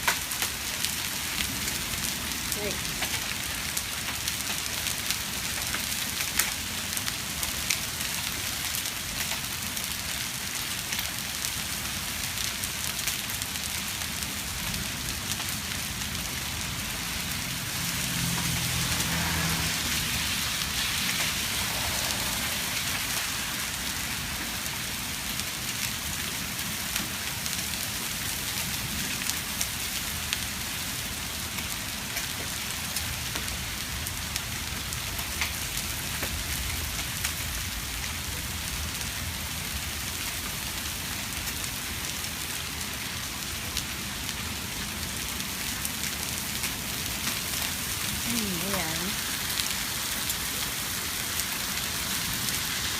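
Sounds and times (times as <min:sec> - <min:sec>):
heavy rain: 0:00.0 - 0:52.9.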